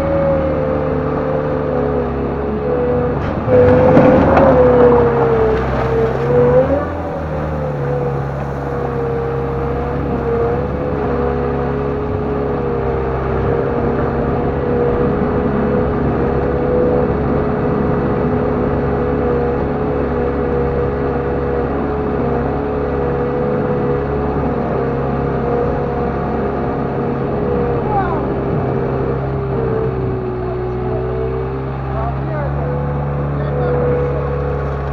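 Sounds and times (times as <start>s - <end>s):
loader engine running: 0.0s - 34.9s.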